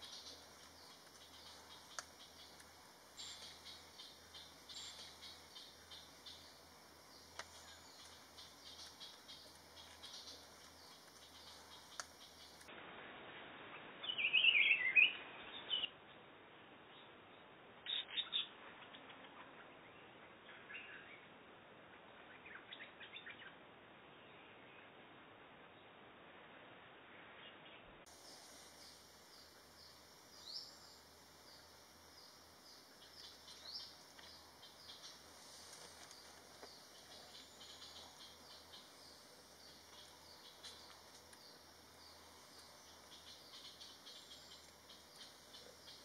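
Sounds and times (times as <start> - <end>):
songbird chirping: 0.0 - 12.7, 14.0 - 16.0, 27.4 - 46.0
faint background hiss: 0.0 - 46.0.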